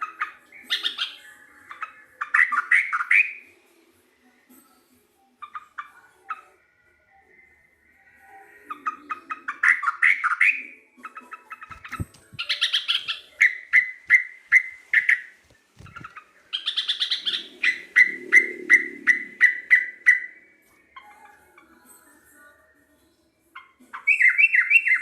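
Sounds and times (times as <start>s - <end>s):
bulbul singing: 0.0s - 3.5s, 7.4s - 22.5s, 23.4s - 25.0s.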